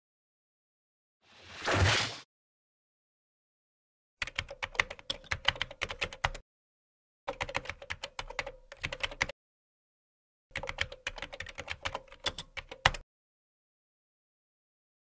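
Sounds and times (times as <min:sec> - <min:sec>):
keyboard typing: 0:04.2 - 0:06.4, 0:07.3 - 0:09.3, 0:10.5 - 0:13.0.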